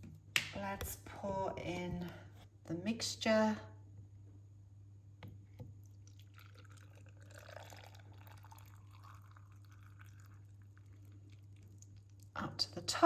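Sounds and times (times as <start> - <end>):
brine pouring into glass jar: 6.1 - 11.8.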